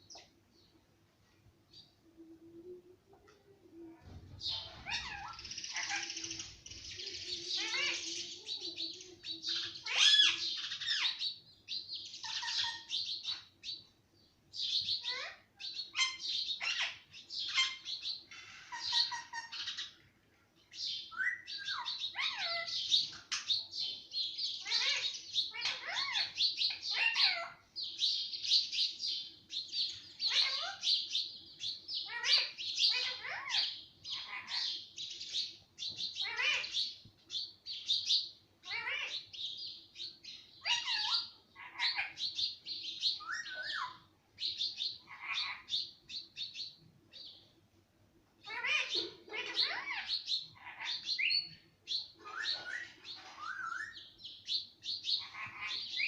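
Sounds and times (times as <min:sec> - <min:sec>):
parrot chirping and chattering: 0:04.4 - 0:11.3, 0:12.0 - 0:13.6, 0:14.9 - 0:20.0, 0:20.7 - 0:23.8, 0:24.4 - 0:27.7, 0:29.9 - 0:31.2, 0:32.0 - 0:37.0, 0:38.6 - 0:39.3, 0:40.6 - 0:46.6, 0:48.4 - 0:56.0.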